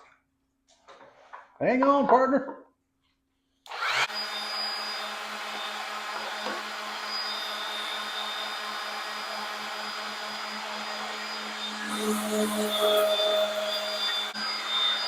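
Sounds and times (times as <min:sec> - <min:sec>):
power tool motor whirring: 0:03.7 - 0:15.0.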